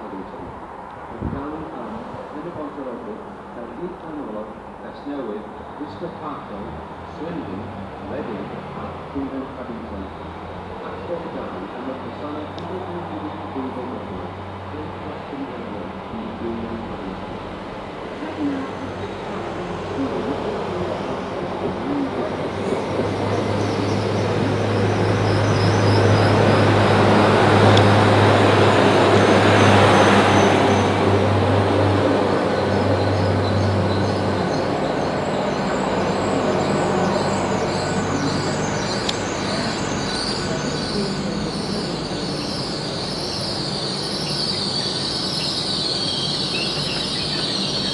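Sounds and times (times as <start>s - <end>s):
train rolling into platform: 13.3s - 47.9s.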